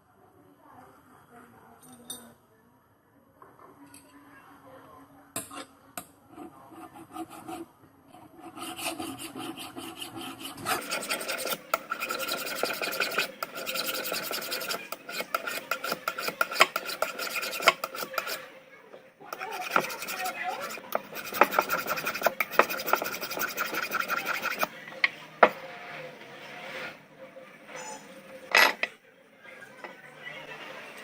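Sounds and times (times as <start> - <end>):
rasping on steel blade: 8.4 - 18.5, 19.3 - 24.7.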